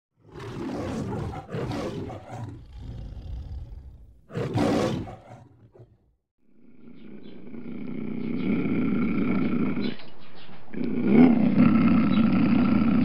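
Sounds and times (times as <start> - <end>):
lion roaring: 0.2 - 6.1.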